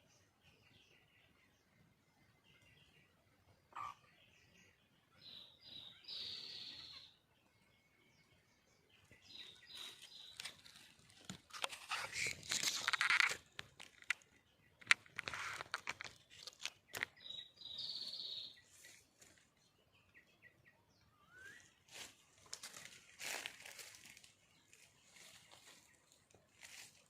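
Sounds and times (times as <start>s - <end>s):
short bird chirps: 3.7s - 4.2s, 5.2s - 7.2s, 17.1s - 19.0s, 21.0s - 22.2s
faint rustling and crackling: 9.4s - 17.2s, 21.9s - 27.0s.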